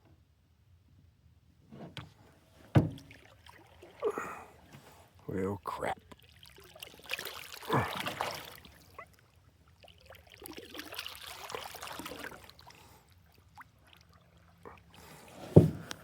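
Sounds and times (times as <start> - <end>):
canoe paddle strokes: 1.7 - 5.3, 6.0 - 16.0.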